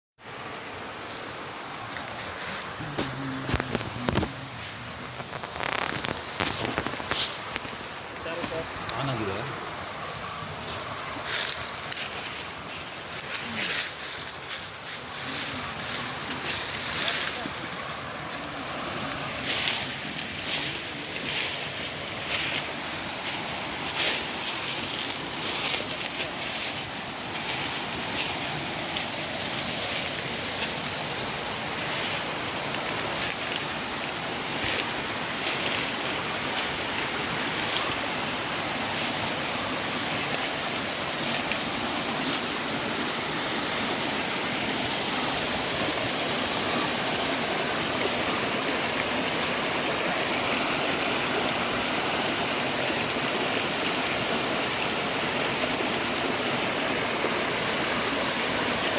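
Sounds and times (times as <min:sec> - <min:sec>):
waterfall rushing: 0:00.2 - 0:58.9
short crackles: 0:02.3 - 0:09.0.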